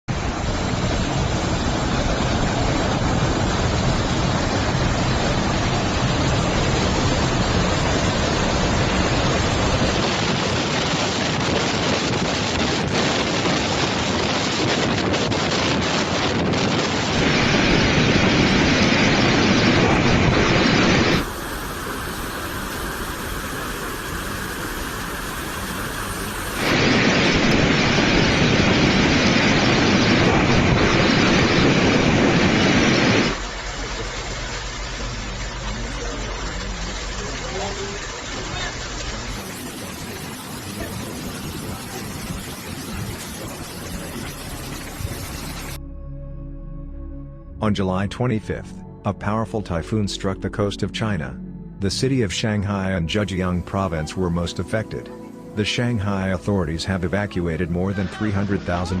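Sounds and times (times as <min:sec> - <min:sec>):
wind and rain rushing: 0:00.0 - 0:45.8.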